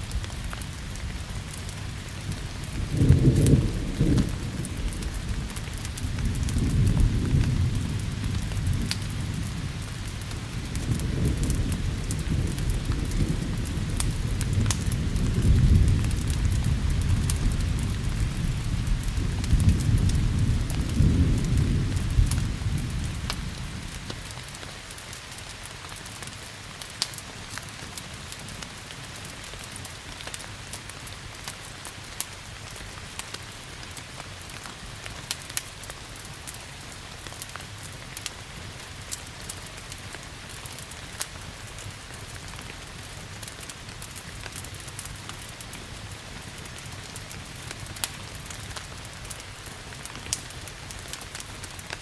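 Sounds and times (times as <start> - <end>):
low thunder rumble: 0.0 - 24.3
fireplace fire crackling: 0.0 - 52.0
steady rain: 0.0 - 52.0.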